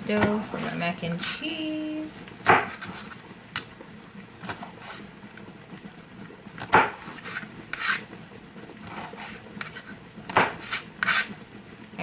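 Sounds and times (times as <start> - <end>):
utensils scraping and rubbing: 0.6 - 1.5, 7.0 - 8.1, 10.6 - 11.4.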